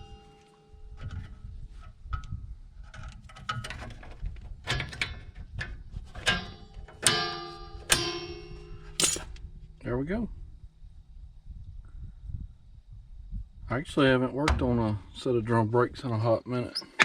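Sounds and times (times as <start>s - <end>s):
metal tools clinking and clanking: 9.0s - 9.4s.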